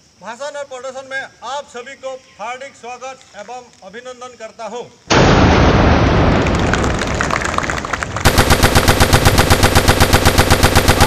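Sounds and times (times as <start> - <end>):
rapid automatic gunfire: 8.2 - 11.0.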